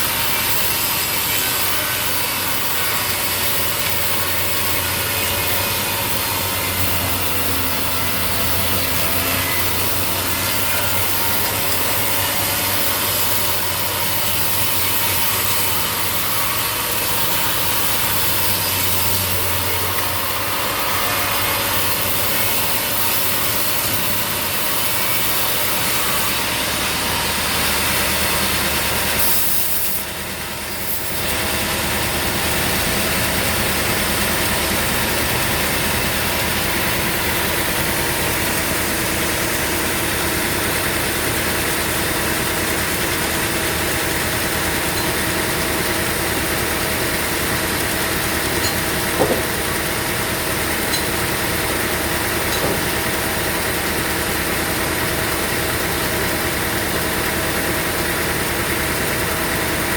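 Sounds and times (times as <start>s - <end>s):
engine drone: 0.0s - 59.9s
saw blade cutting log: 0.0s - 59.9s.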